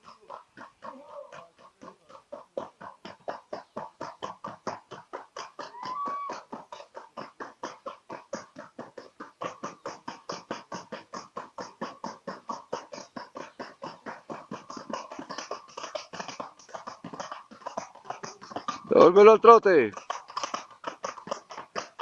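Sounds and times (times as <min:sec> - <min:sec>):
horse hooves on hard track: 0:00.0 - 0:12.8, 0:13.6 - 0:19.3, 0:19.9 - 0:22.0.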